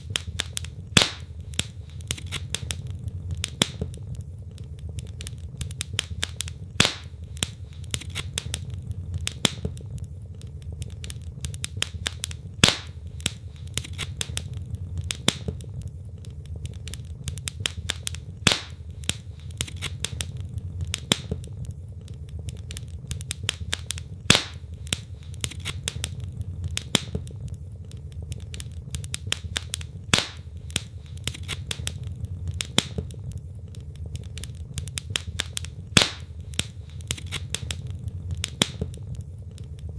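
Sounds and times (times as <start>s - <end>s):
loud wood pops: 0.0s - 2.8s, 5.7s - 9.8s, 11.5s - 15.6s, 16.9s - 21.5s, 22.5s - 27.4s, 28.4s - 32.0s, 34.3s - 39.0s
fire low rumble: 0.0s - 39.9s
logs crackling in fireplace: 0.0s - 39.9s.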